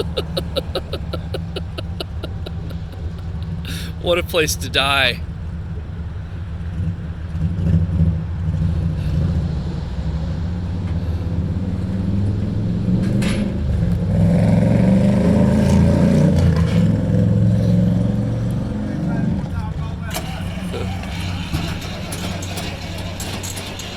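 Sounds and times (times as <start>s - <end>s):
truck engine under load: 0.0s - 23.9s
clatter: 13.0s - 14.1s, 19.6s - 23.9s.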